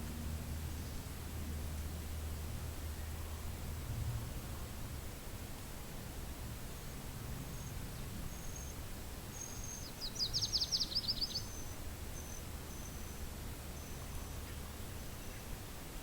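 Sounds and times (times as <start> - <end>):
wind rumbling on microphone: 0.0 - 16.0
songbird trilling: 7.5 - 14.1.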